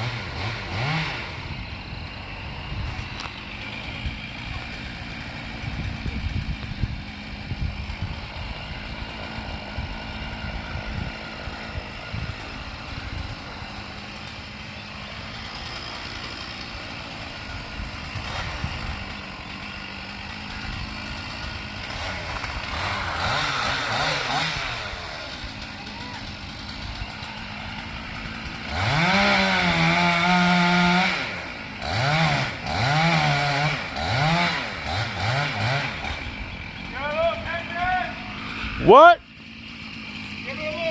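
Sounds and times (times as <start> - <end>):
chainsaw running and revving: 0.0 - 40.9
truck engine idling: 1.2 - 30.0, 36.0 - 40.9.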